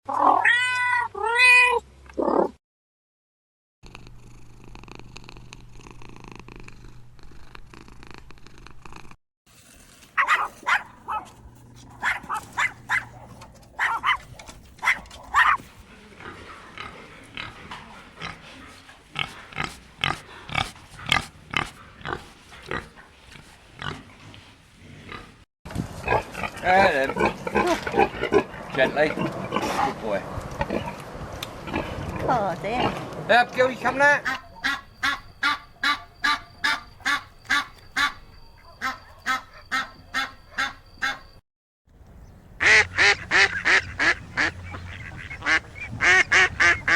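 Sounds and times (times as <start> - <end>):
pigs grunting and squealing: 15.2 - 25.4, 26.0 - 31.0.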